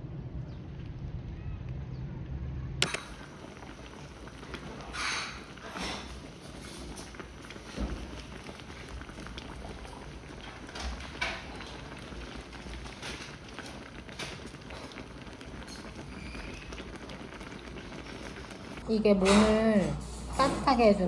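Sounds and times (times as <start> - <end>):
food bubbling: 2.8 - 18.8.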